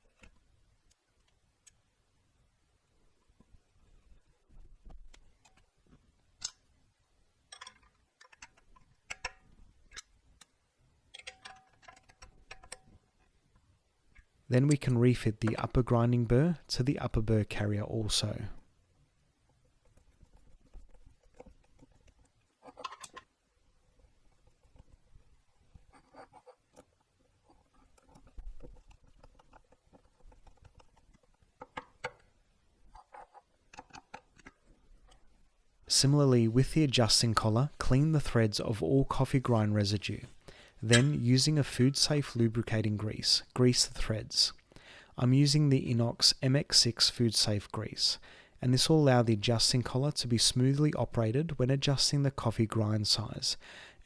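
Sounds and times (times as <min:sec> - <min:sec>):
metal parts clicking and clinking: 0:07.5 - 0:08.6, 0:11.1 - 0:12.8
metal parts clicking and tapping: 0:07.5 - 0:13.0, 0:40.8 - 0:41.2.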